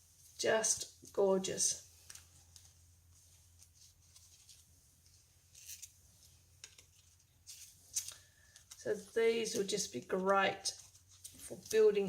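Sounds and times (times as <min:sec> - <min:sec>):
paper rustling: 0:01.9 - 0:12.0.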